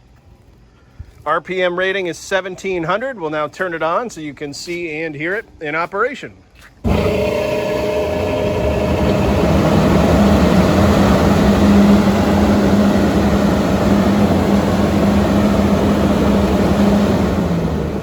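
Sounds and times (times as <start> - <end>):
exhaust blower running: 6.8 - 18.0.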